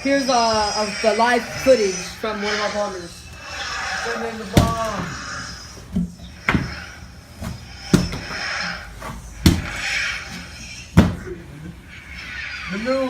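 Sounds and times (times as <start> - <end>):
breathy hissing: 0.0 - 13.0
sharp knocks: 5.9 - 10.0, 11.0 - 11.4.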